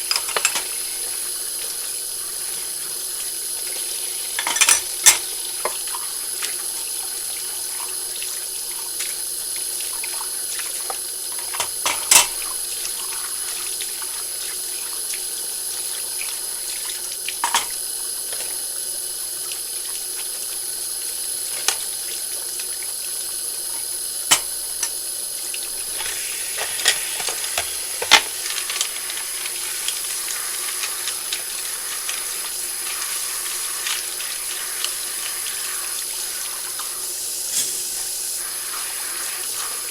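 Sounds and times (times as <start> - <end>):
dishes clinking: 0.0 - 0.8, 4.4 - 5.8, 11.6 - 12.4, 17.4 - 17.8
tap running into sink: 23.8 - 39.9.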